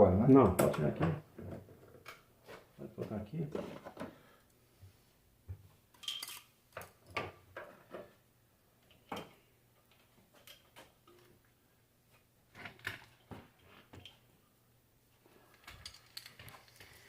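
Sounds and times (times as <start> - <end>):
metal tools clinking on workbench: 6.0 - 6.5.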